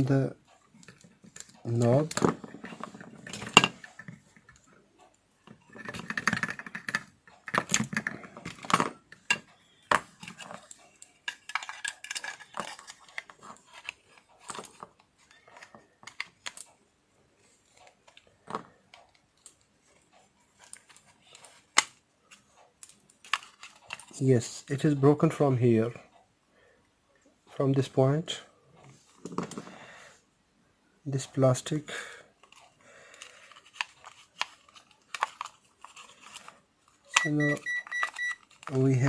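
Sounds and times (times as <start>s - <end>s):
plastic parts clicking and tapping: 0.8s - 4.7s, 5.4s - 16.7s, 20.6s - 24.2s, 32.4s - 38.9s.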